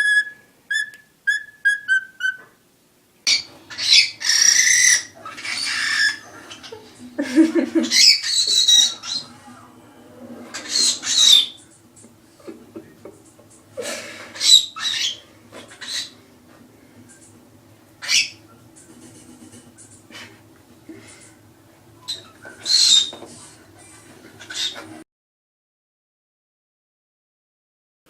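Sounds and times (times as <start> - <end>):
cockatiels chirping: 0.0 - 2.5, 3.3 - 6.8, 7.9 - 9.3, 10.6 - 11.6, 14.4 - 16.2, 18.0 - 18.4, 22.0 - 23.1.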